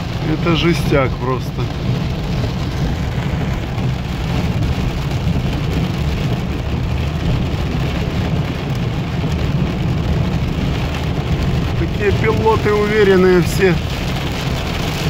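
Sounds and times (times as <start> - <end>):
heavy rain on car roof: 0.0 - 15.0
road and engine rumble: 0.0 - 15.0.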